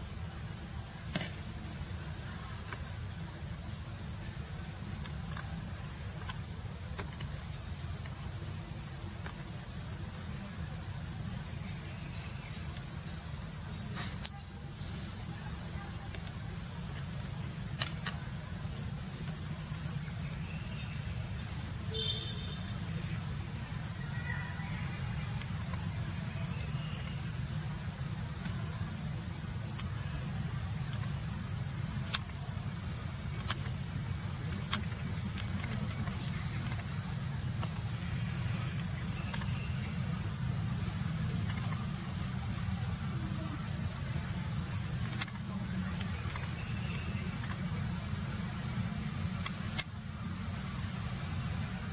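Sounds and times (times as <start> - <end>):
insects trilling: 0.0 - 51.9
sharp clicks: 45.0 - 47.7.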